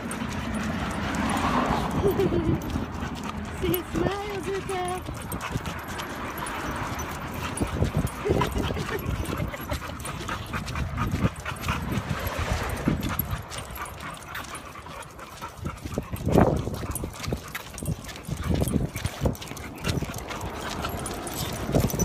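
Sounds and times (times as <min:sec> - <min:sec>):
dogs panting and whimpering: 0:00.0 - 0:22.0
paws ticking on the ground: 0:00.0 - 0:22.0.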